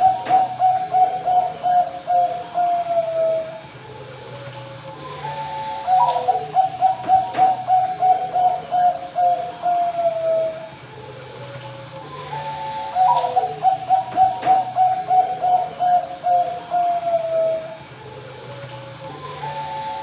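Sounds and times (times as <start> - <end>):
dove cooing: 0.0 - 20.0
steady low hum: 0.0 - 20.0.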